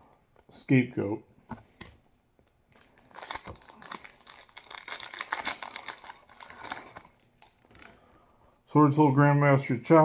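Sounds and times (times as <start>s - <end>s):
card and wrapper rustling: 1.5s - 8.0s.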